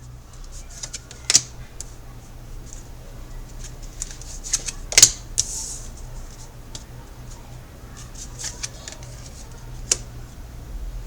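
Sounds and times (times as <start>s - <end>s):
cards rustling and clicking: 0.3s - 2.0s, 3.5s - 10.1s
card snaps: 0.7s - 1.9s, 4.0s - 5.6s.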